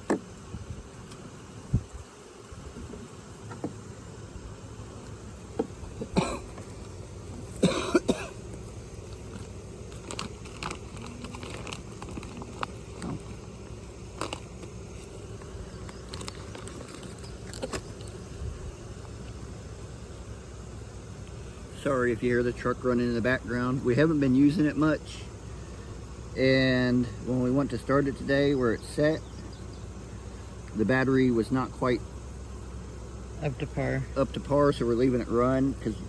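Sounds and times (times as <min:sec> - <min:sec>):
knocks from wooden hive frames: 0:00.0 - 0:01.9, 0:02.6 - 0:04.0, 0:05.4 - 0:10.9
honeybees buzzing: 0:00.0 - 0:36.0.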